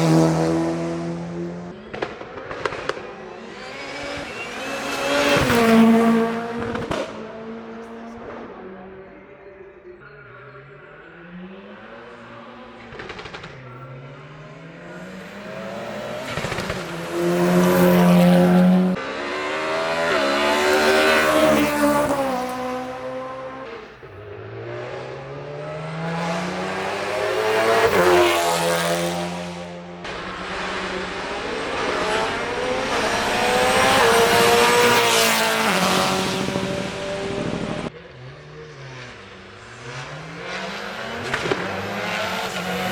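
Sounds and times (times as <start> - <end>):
race car engine accelerating: 0.0 - 9.1, 10.8 - 42.9.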